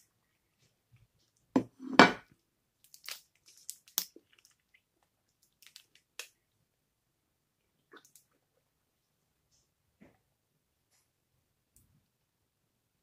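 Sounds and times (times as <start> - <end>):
plastic bottle crinkling: 2.8 - 4.8.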